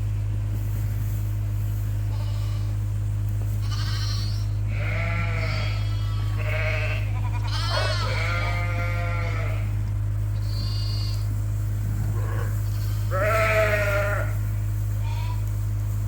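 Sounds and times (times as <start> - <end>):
loud steady low hum: 0.0 - 16.0
sheep bleating: 2.1 - 2.8, 3.6 - 11.3, 12.1 - 14.4, 15.0 - 15.5.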